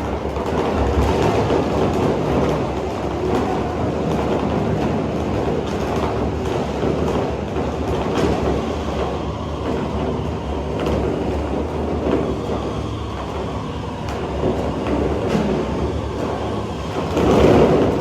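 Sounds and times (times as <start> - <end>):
stadium crowd roaring: 0.4 - 6.0.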